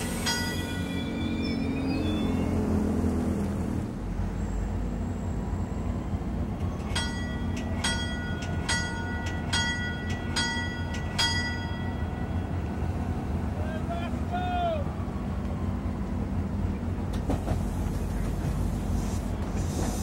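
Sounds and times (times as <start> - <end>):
train rumbling: 0.0 - 20.0
bell striking: 7.0 - 12.1.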